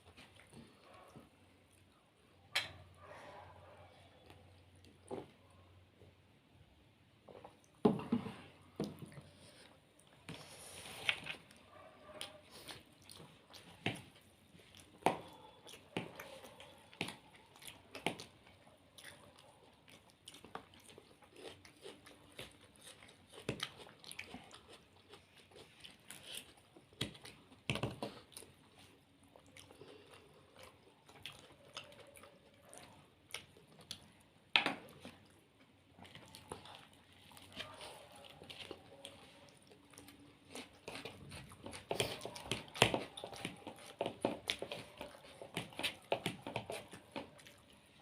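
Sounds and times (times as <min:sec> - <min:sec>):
chewing and biting: 0:11.0 - 0:48.0.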